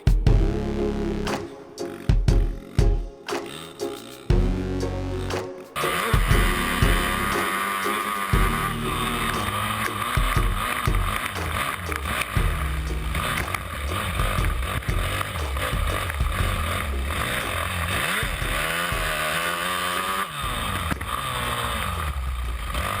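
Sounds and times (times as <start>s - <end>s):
dirt bike engine revving: 5.8s - 23.0s.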